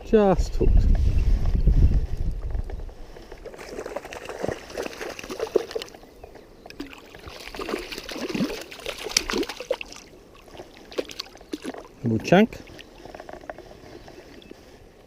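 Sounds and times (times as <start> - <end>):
fish splashing in water: 3.4 - 6.0, 6.7 - 12.0.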